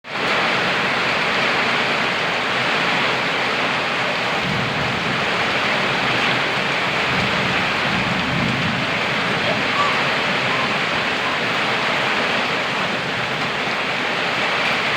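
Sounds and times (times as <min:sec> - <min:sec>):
steady rain hissing: 0:00.1 - 0:14.9
low rumble of thunder: 0:04.2 - 0:14.9.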